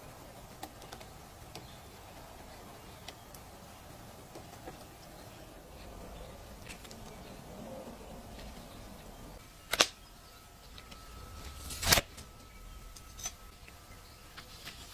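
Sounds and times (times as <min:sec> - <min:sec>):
faint handling ticks: 0:00.0 - 0:10.0
sharp clicks: 0:00.0 - 0:10.0
faint steady high tone: 0:00.0 - 0:14.9.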